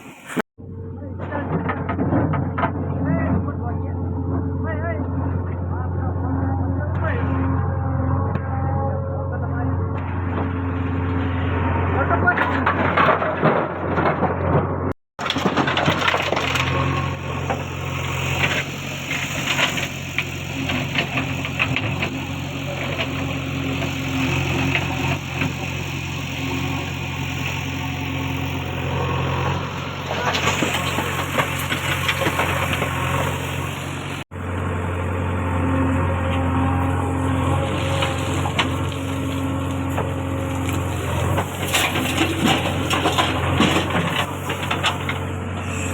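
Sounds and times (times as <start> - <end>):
diesel engine running: 0.0 - 45.9
metal clanks and knocks: 1.2 - 4.5, 12.3 - 17.7, 39.8 - 45.9.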